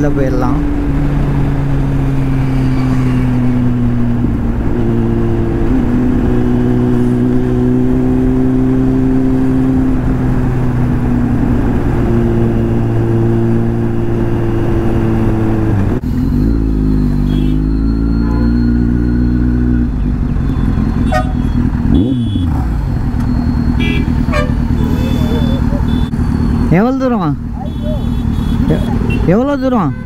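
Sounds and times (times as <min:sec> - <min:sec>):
motorcycle engine running: 0:18.3 - 0:29.3.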